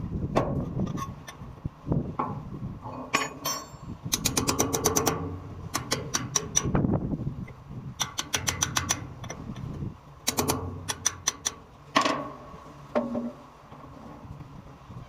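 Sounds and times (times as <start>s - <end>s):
low steady hum: 0.0s - 15.0s
hammer strikes on metal: 3.2s - 6.8s, 8.0s - 9.1s, 10.3s - 11.6s.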